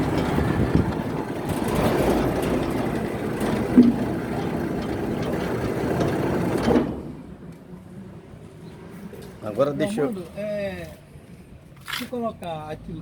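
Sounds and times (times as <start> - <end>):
sliding gate motor rumbling: 0.0 - 7.4.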